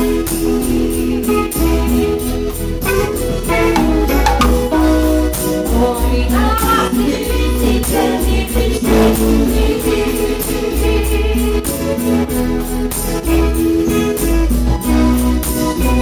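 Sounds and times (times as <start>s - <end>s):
band playing cumbia music: 0.0s - 16.0s.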